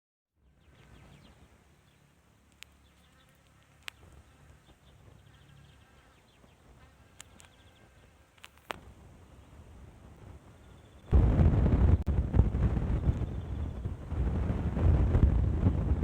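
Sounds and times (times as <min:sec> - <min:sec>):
sharp clicks: 0:02.5 - 0:04.2, 0:07.1 - 0:07.7, 0:08.4 - 0:08.8.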